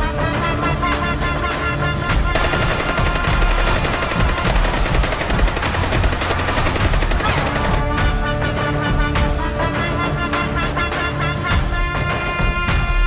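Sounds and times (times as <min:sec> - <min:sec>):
music: 0:00.0 - 0:13.0
automatic gunfire: 0:02.3 - 0:08.2.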